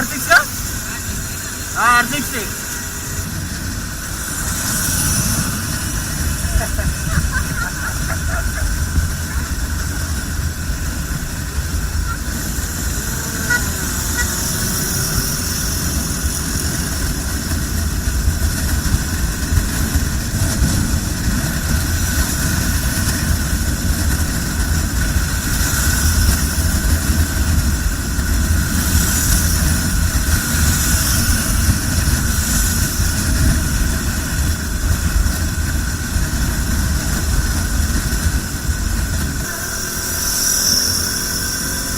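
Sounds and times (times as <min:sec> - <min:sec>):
motorcycle engine: 0:00.0 - 0:41.9
passing traffic: 0:00.0 - 0:41.9
wind rumble on microphone: 0:02.8 - 0:41.9.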